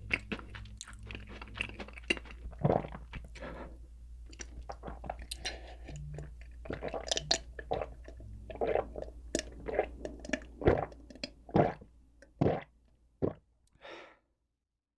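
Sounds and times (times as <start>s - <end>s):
person chewing with wet mouth clicks: 0.0s - 3.4s, 4.3s - 11.8s.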